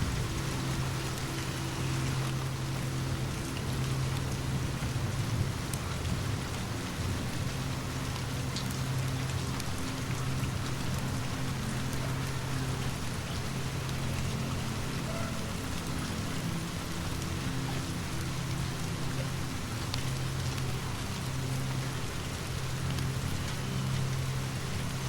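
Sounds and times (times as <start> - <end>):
rain falling: 0.0 - 25.0.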